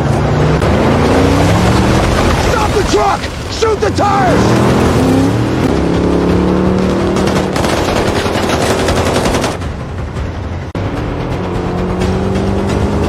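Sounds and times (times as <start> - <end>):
heavy truck engine: 0.0 - 13.0
rapid automatic gunfire: 6.8 - 9.7.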